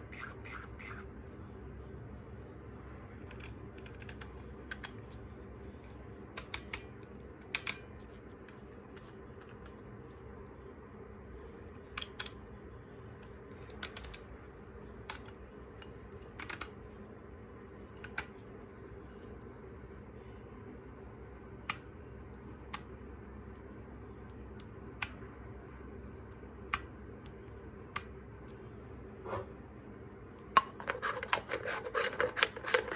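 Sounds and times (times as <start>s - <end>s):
steady low hum: 0.0s - 32.9s
small hard parts clicking: 30.5s - 32.9s.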